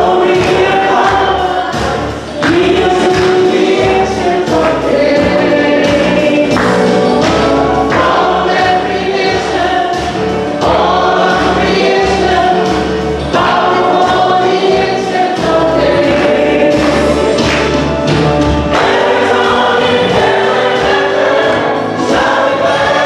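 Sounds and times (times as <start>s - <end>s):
choir singing gospel music: 0.0s - 23.0s
instrumental backing: 0.0s - 23.0s.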